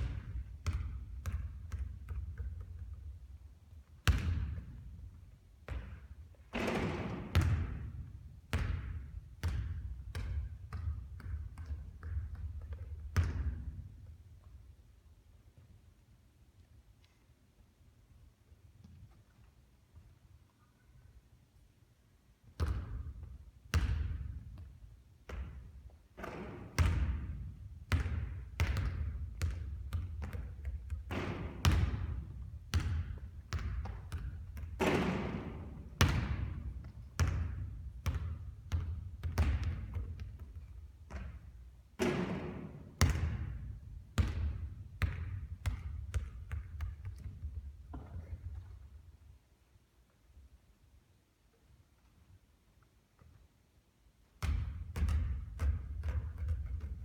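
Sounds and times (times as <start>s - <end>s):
basketball bouncing on a court: 0.0s - 14.2s, 22.5s - 48.9s, 54.4s - 57.0s.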